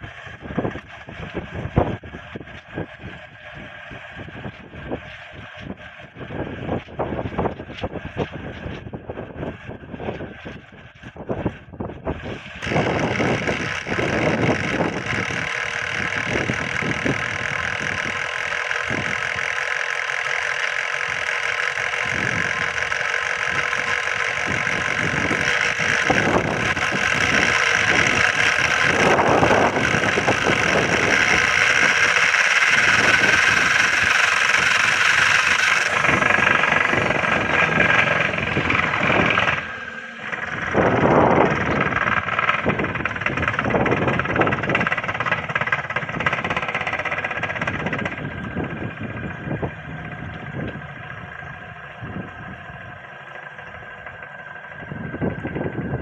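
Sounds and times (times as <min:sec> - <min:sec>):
rotor whirring: 0:00.0 - 0:56.0
rattling clicks: 0:12.3 - 0:51.6.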